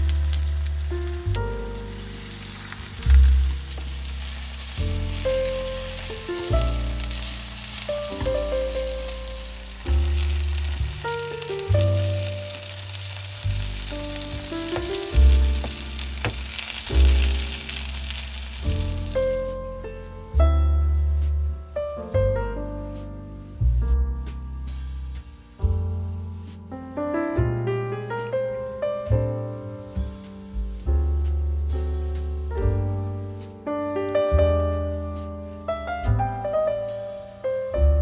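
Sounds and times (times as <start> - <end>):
food sizzling in a pan: 0.0 - 20.3
background music with piano: 0.0 - 38.0.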